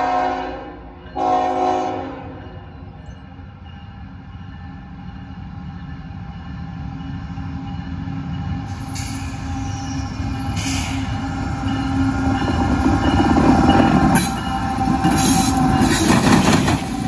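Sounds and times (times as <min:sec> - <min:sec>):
diesel locomotive engine: 0:00.0 - 0:17.0
train rumble: 0:00.0 - 0:17.0
brief air hisses: 0:10.6 - 0:11.1, 0:15.1 - 0:15.6.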